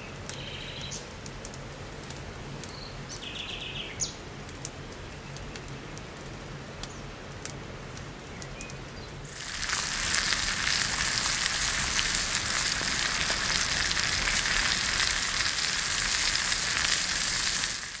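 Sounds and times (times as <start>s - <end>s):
fat popping: 9.3s - 18.0s
meat and cheese sizzling in a pan: 9.3s - 18.0s.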